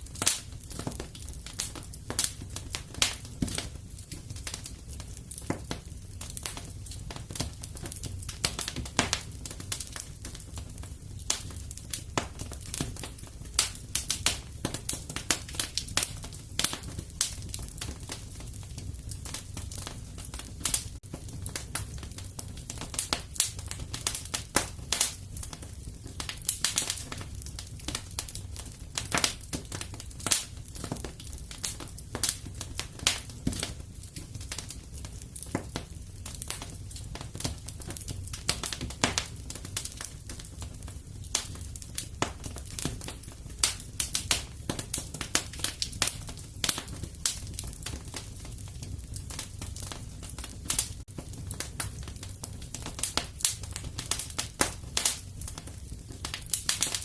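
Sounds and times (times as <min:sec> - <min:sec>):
fireplace fire crackling: 0:00.0 - 0:57.0.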